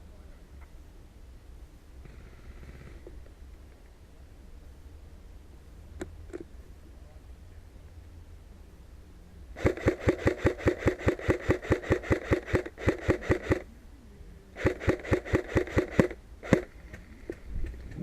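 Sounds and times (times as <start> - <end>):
airsoft gun firing bursts: 9.6 - 13.7, 14.6 - 17.8.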